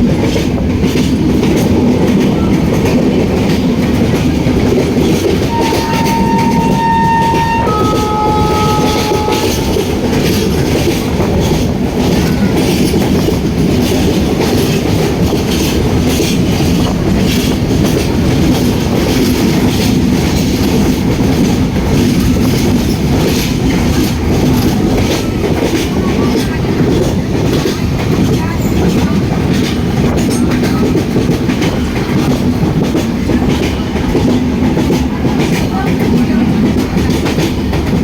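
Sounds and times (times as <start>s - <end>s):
train wheels rumbling on rails: 0.0s - 38.0s
train horn: 5.4s - 10.4s.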